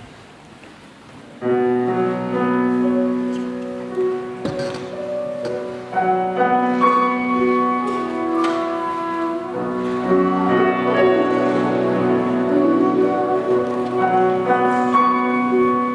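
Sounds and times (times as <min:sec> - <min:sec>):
piano: 0:00.0 - 0:15.9
bamboo flute melody: 0:06.1 - 0:15.9.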